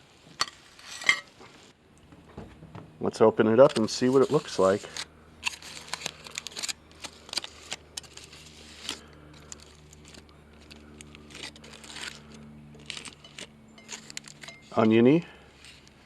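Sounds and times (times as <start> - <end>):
wrapping crinkling and crackling: 3.6 - 16.0.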